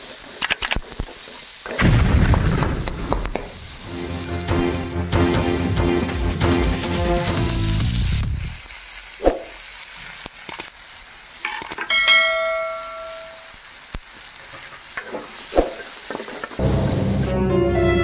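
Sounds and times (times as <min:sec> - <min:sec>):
vegetables sizzling in a pan: 0:00.0 - 0:17.4
pan ringing: 0:11.5 - 0:13.6.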